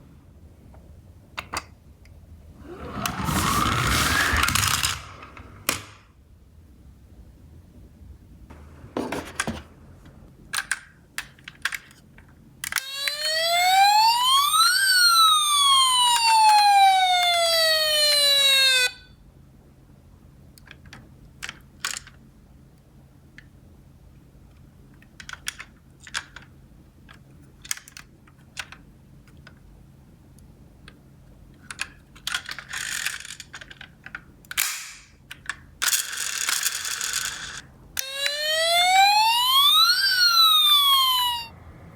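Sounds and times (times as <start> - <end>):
electronic toy siren wail: 2.7 - 5.0, 12.8 - 19.2, 38.0 - 41.6
plastic toy cars clicking: 2.8 - 6.0, 10.5 - 12.9, 20.6 - 22.2, 25.0 - 29.7, 31.6 - 38.2.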